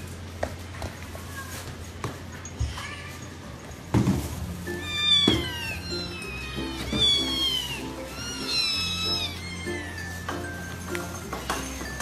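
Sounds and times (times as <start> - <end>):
background music: 4.5 - 12.0
kitten meowing: 4.7 - 10.4.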